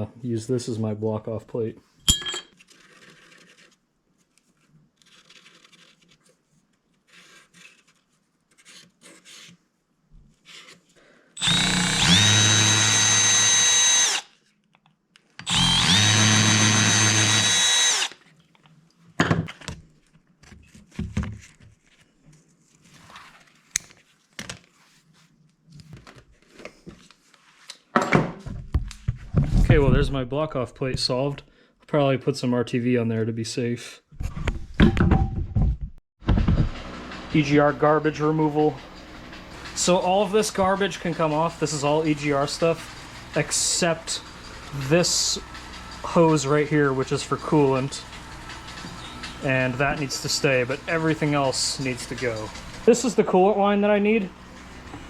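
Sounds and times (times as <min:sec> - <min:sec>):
electric drill whining: 0:11.4 - 0:14.3, 0:15.4 - 0:18.2, 0:38.9 - 0:52.9.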